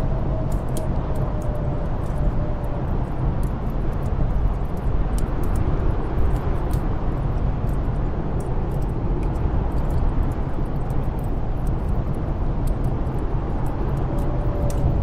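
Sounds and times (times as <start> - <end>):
snowstorm wind rumbling: 0.0 - 15.0
wood fire crackling: 0.0 - 15.0.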